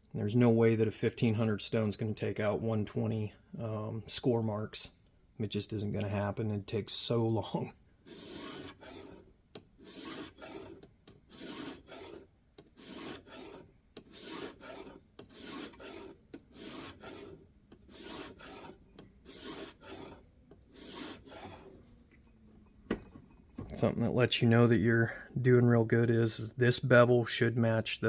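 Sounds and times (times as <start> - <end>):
sharpening plate rasping on knife blade: 8.1 - 9.2, 9.8 - 21.8.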